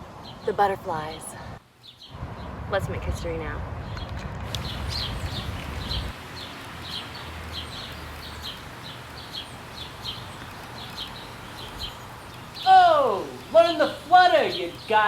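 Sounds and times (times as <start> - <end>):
steady hiss: 4.5 - 15.0.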